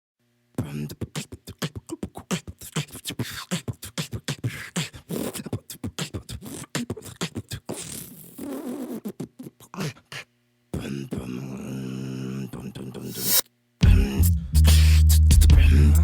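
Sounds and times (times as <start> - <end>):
human beatbox rhythm: 0.6 - 10.2, 13.0 - 16.0.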